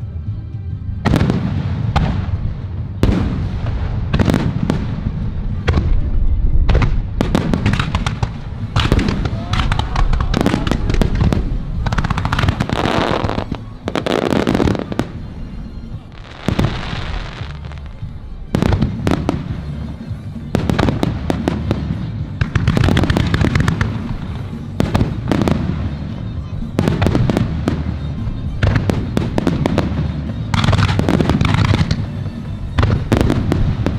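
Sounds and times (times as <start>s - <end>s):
fireworks crackling: 0.8s - 33.9s
fireworks shells bursting: 6.7s - 33.9s.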